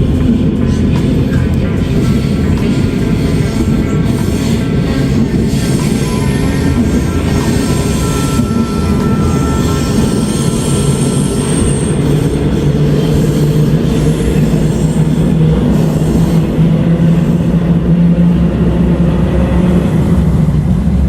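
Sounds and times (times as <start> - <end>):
train rumbling on rails: 0.0 - 21.0
high-pitched wheel squeal: 0.6 - 17.7.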